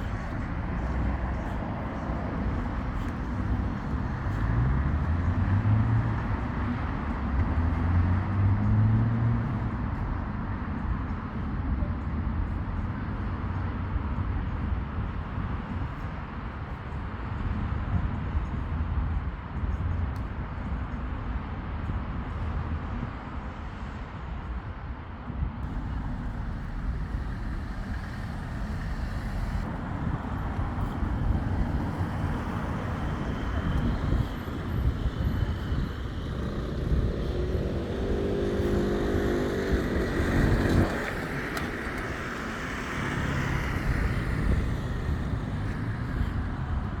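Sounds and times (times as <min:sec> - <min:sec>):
road traffic rumble: 0:00.0 - 0:18.4, 0:25.6 - 0:47.0
engine note: 0:25.6 - 0:47.0.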